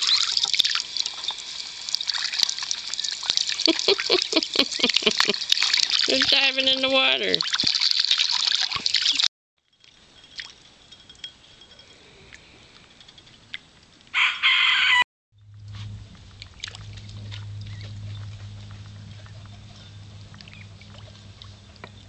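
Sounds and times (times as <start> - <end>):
ducklings splashing in water: 2.0 - 9.3
steady low hum: 15.4 - 22.0.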